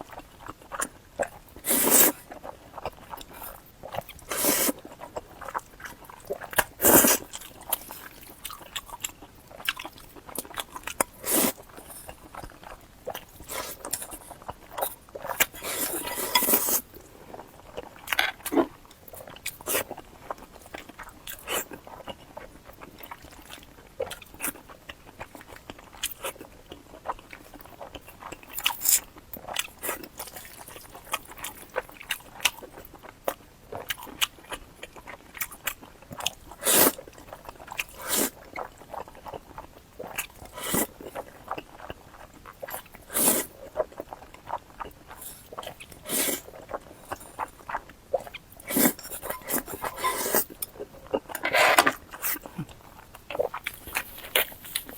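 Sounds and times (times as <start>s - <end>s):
person chewing crunchy food: 0.0s - 54.9s
wet mouth sounds: 42.6s - 54.9s.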